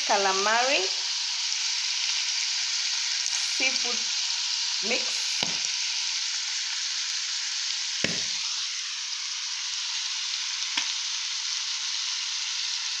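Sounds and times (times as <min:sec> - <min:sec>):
seafood sizzling in frying pan: 0:00.0 - 0:13.0
knocks on pan: 0:05.4 - 0:05.7, 0:08.0 - 0:08.4.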